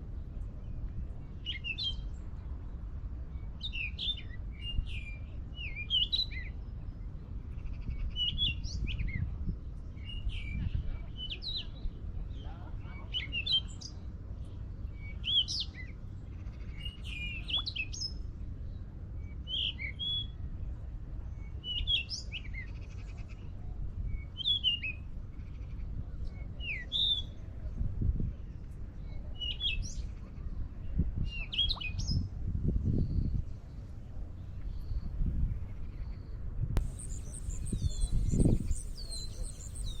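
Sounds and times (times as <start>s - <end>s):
steady low rumble: 32.3s - 40.0s
small birds chirping: 35.8s - 40.0s.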